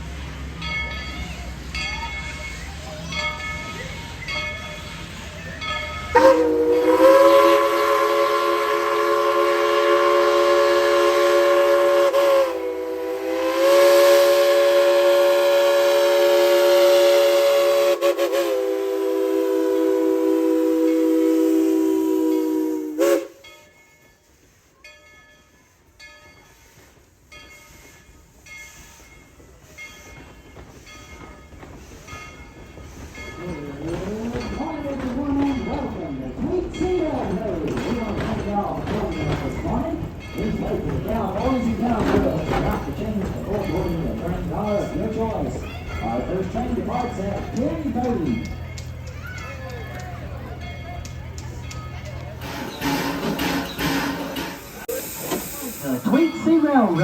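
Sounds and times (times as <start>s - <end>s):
steam locomotive chime whistle: 0.8s - 24.4s, 50.7s - 57.0s.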